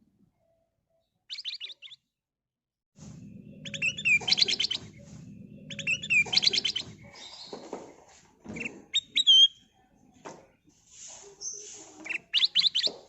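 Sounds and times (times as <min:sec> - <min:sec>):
bulbul singing: 0:01.3 - 0:02.0, 0:03.1 - 0:07.7, 0:08.5 - 0:09.6, 0:11.4 - 0:13.0
steady low hum: 0:03.0 - 0:07.4.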